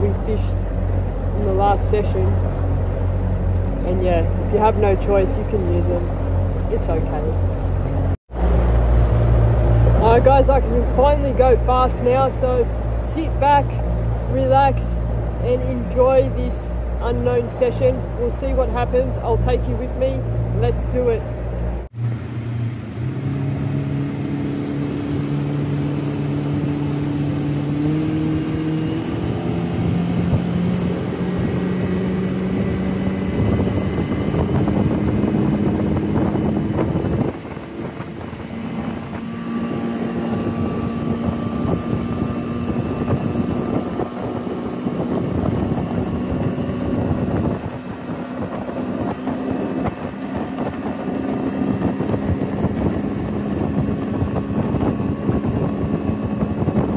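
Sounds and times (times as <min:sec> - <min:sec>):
outboard motor at speed: 0:00.0 - 0:56.9.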